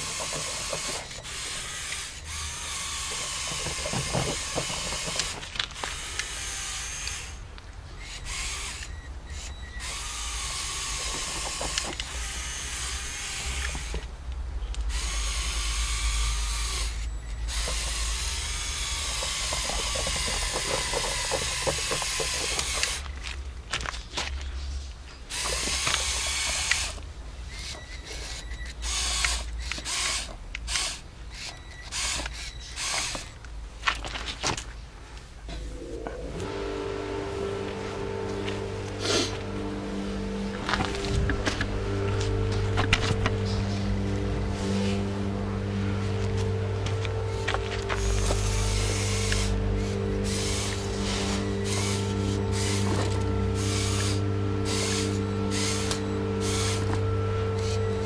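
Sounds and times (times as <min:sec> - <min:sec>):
small electric motor whine: 0:00.0 - 0:14.1, 0:14.8 - 0:23.4, 0:25.3 - 0:33.4, 0:35.7 - 0:58.0
plastic gear rattle: 0:17.5 - 0:24.5.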